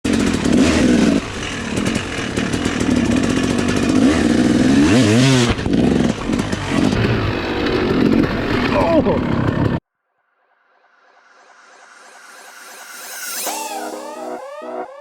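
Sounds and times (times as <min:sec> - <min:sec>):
dirt bike engines revving: 0:00.1 - 0:09.8.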